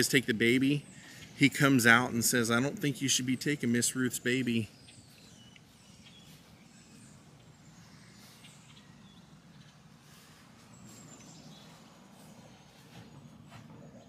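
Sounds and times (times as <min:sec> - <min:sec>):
low background noise: 0:00.0 - 0:14.0
high bird chirps: 0:03.1 - 0:14.0.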